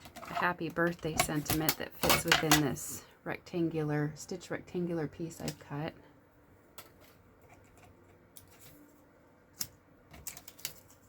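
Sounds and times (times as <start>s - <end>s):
craft supplies clicking and tapping: 0.0s - 2.8s.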